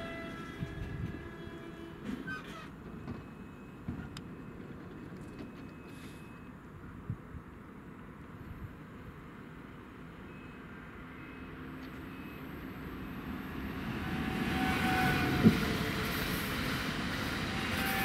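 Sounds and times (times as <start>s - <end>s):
electric train passing: 10.7s - 18.0s.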